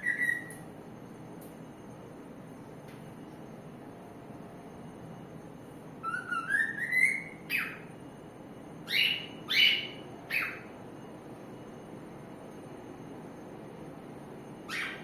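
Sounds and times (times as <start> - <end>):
cockatiel whistling notes: 0.0 - 0.6, 6.0 - 7.8, 8.9 - 10.6.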